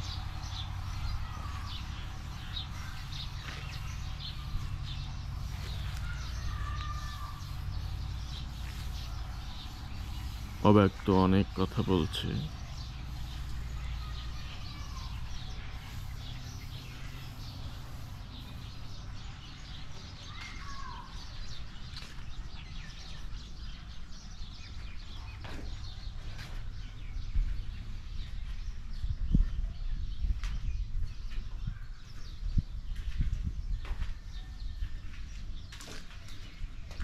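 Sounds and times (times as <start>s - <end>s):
steady low rumble: 0.0s - 11.6s
birds chirping: 0.0s - 37.0s.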